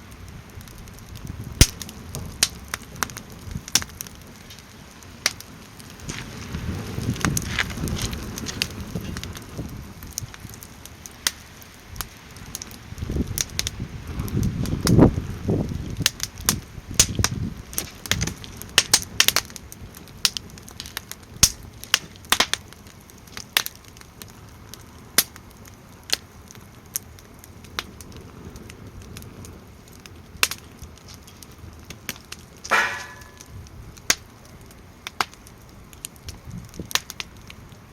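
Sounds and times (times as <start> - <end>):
wind rumbling on microphone: 0.0 - 21.9, 32.9 - 34.1, 35.8 - 37.8
campfire crackling and popping: 0.0 - 37.9.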